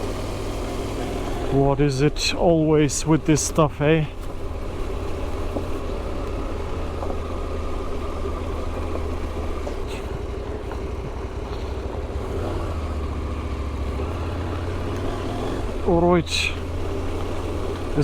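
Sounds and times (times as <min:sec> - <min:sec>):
motorcycle engine running at low revs: 0:00.0 - 0:18.0.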